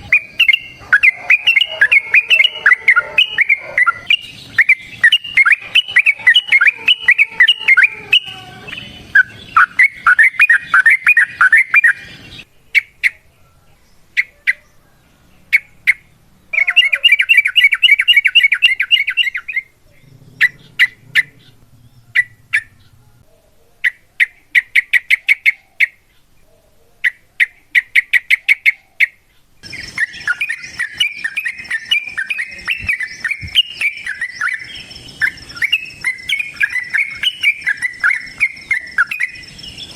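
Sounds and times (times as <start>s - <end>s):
bulbul singing: 0.0s - 14.8s, 29.6s - 39.9s.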